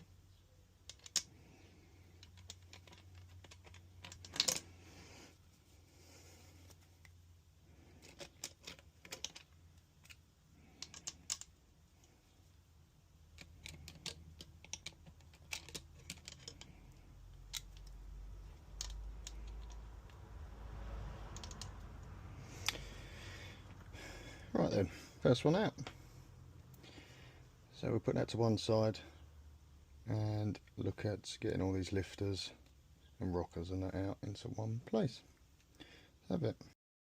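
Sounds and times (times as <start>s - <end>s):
hand tools clicking and tapping: 0.8s - 1.3s, 8.0s - 11.6s, 13.3s - 20.2s, 21.3s - 21.8s.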